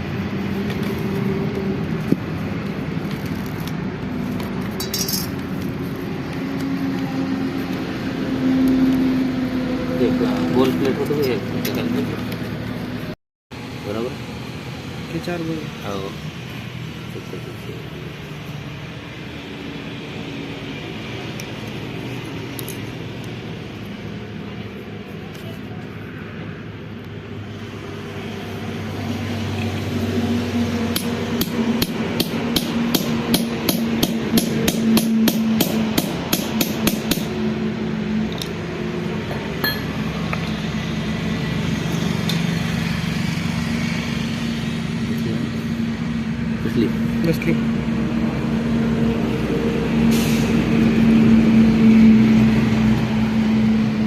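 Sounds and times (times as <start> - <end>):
hammer strikes on metal: 30.9 - 37.4.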